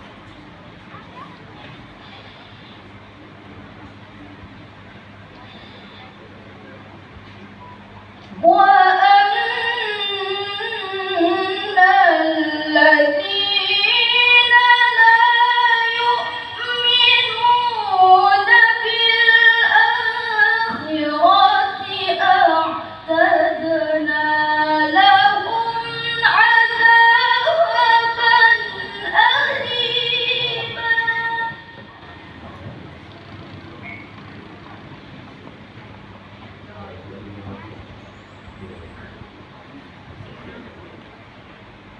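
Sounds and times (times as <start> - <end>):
girl reciting melodically: 8.4 - 32.2.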